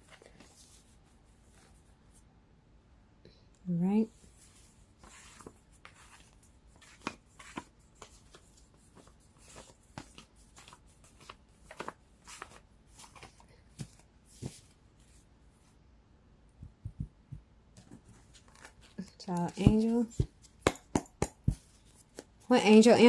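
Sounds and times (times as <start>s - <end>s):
cards rustling and tapping: 5.0s - 14.8s, 16.6s - 22.9s.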